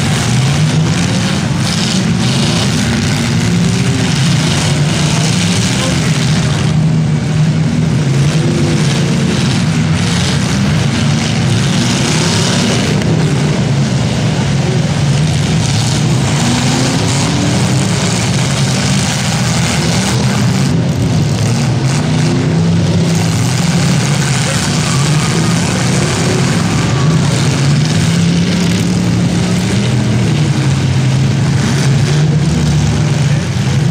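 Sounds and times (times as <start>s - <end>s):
car engines revving: 0.0s - 33.9s
noisy din: 0.0s - 33.9s.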